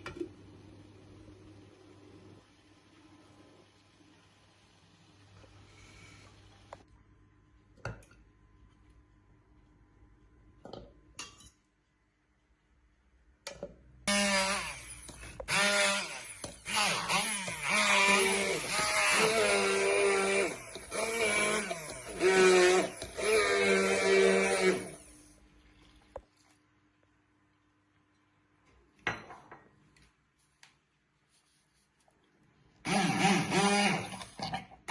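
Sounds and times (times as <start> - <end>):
blender motor running: 14.1 - 25.2, 32.9 - 34.3.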